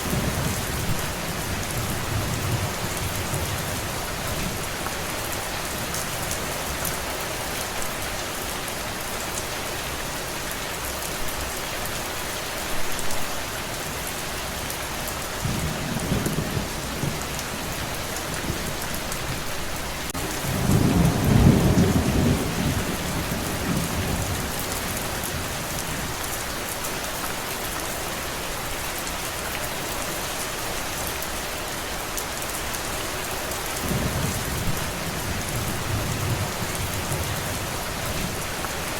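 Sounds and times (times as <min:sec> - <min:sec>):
heavy rain: 0:00.0 - 0:38.9
rolling thunder: 0:20.2 - 0:25.6, 0:33.8 - 0:38.5.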